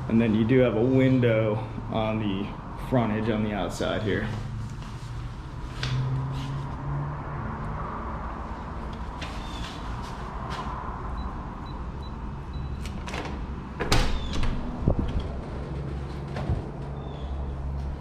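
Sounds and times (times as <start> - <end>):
door latch clicks and knocks: 12.8 - 15.4.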